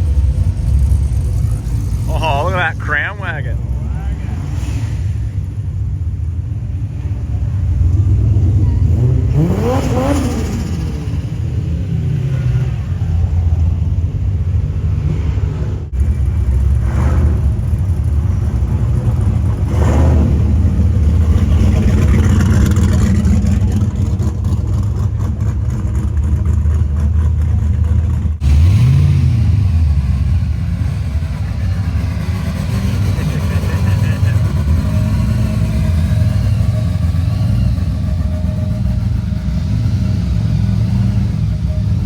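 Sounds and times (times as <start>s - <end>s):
car engines rumbling: 0.0s - 42.0s
engine revving: 7.8s - 13.6s, 14.6s - 42.0s.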